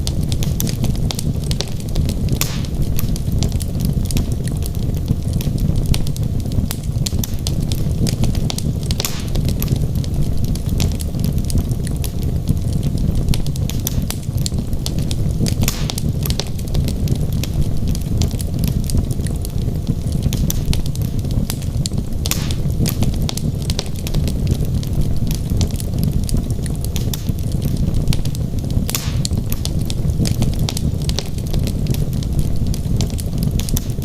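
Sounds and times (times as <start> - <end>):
burning logs crackling and popping: 0.0 - 34.0
low rumble of flames: 0.0 - 34.0.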